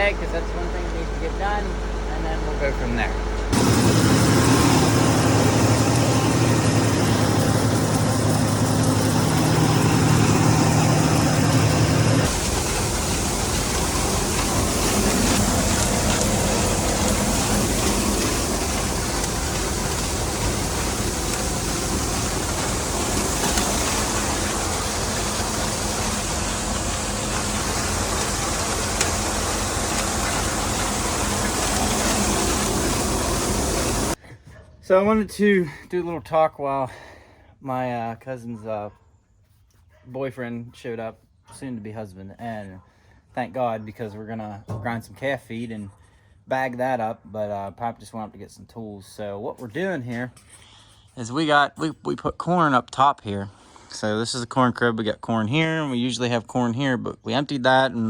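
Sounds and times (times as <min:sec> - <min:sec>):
tractor engine running: 0:03.5 - 0:34.2.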